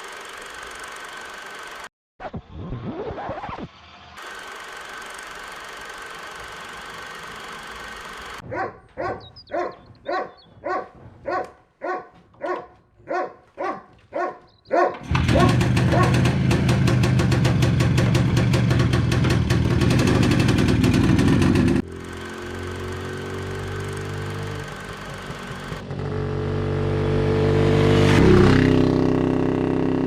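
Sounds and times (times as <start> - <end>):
two-stroke motorcycle engine running: 4.2 - 8.4, 15.0 - 30.0
dog barking: 8.4 - 16.2.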